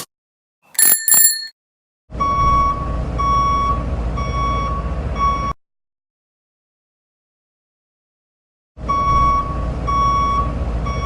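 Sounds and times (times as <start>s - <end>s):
truck reversing alarm beeping: 2.1s - 5.6s, 8.8s - 11.0s.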